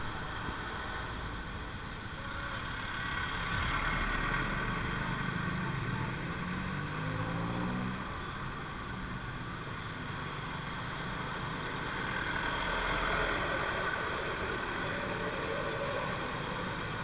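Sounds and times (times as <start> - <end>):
road traffic noise: 0.0 - 17.0
vehicle engine accelerating: 2.8 - 8.2, 11.4 - 17.0.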